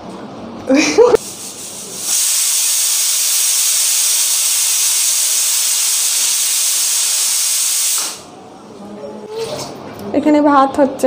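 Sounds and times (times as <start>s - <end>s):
pressure cooker steam hiss: 1.2s - 8.3s.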